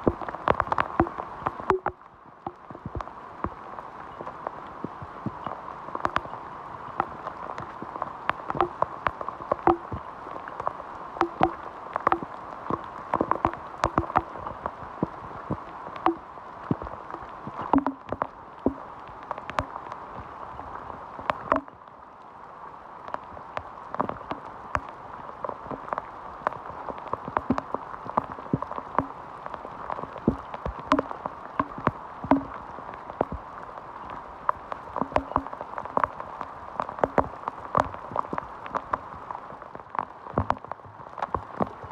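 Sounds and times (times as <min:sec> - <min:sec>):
sharp rain drop taps: 0:00.0 - 0:03.6, 0:04.2 - 0:06.4, 0:07.0 - 0:20.0, 0:21.3 - 0:21.7, 0:23.6 - 0:24.9, 0:25.8 - 0:32.6, 0:34.5 - 0:36.2, 0:36.8 - 0:39.1.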